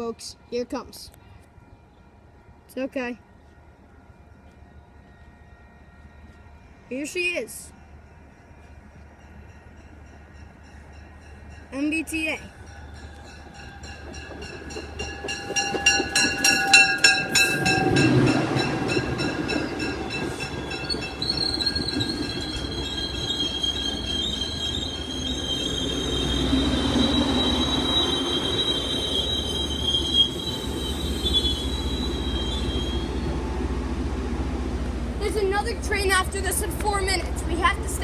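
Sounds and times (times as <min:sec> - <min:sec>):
wheels and brakes squealing: 0:12.8 - 0:33.4
train wheels clattering: 0:13.0 - 0:29.1.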